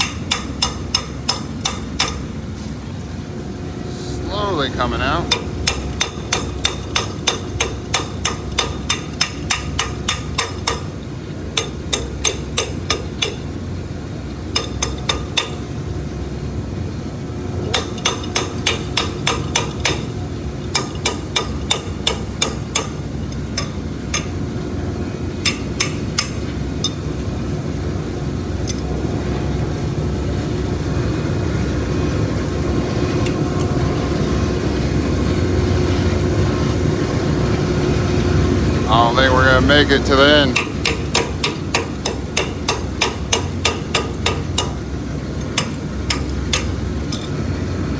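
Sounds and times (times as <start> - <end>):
hammer tapping metal pipe: 0.0 - 2.3, 5.3 - 13.6, 14.5 - 15.8, 17.7 - 24.4, 25.4 - 27.1, 39.7 - 47.4
pump running: 0.0 - 47.9.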